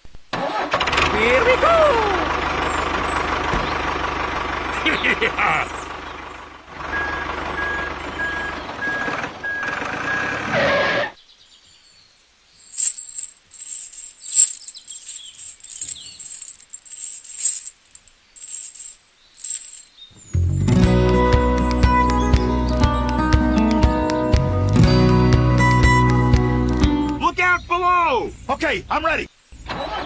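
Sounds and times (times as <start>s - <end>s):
music: 20.4s - 27.2s.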